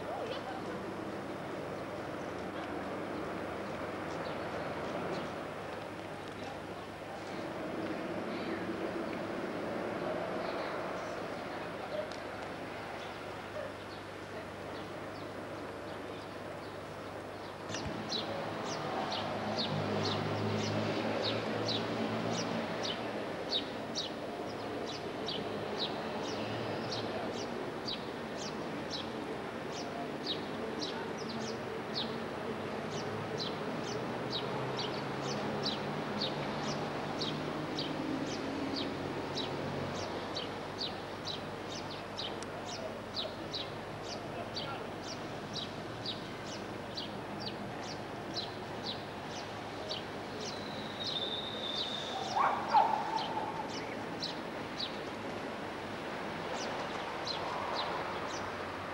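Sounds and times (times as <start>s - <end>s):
bird chirping: 47.8s - 55.0s.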